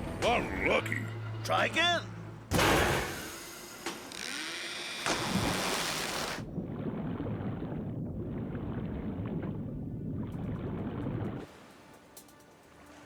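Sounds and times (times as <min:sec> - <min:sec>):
water churning: 0:04.2 - 0:13.0.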